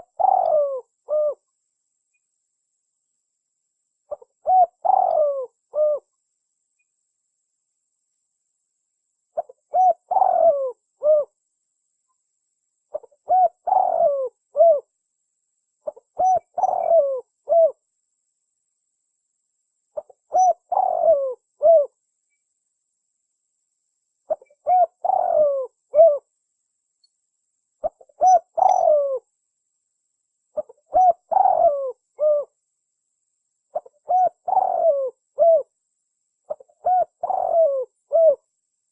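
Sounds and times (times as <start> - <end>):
dove cooing: 0.0 - 1.5, 4.1 - 6.1, 9.4 - 11.4, 12.9 - 14.9, 15.8 - 17.8, 20.0 - 22.0, 24.3 - 26.3, 27.8 - 29.3, 30.6 - 32.6, 33.7 - 35.7, 36.5 - 38.5.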